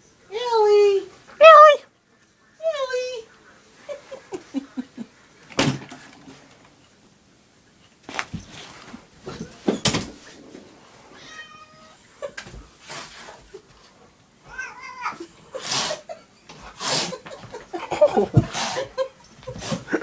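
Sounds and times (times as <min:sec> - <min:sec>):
cat meowing: 0:11.2 - 0:12.0, 0:14.4 - 0:15.3.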